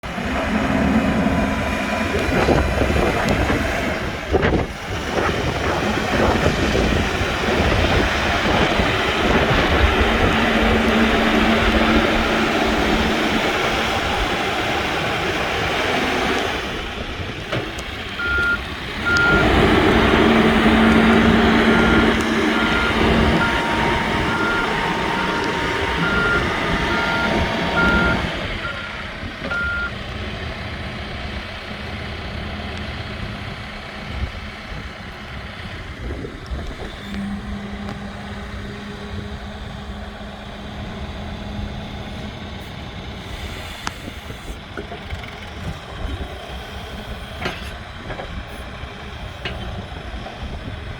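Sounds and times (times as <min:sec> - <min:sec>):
backhoe engine running: 0:00.0 - 0:50.9
reversing alarm beeping: 0:08.6 - 0:14.2, 0:18.2 - 0:29.9.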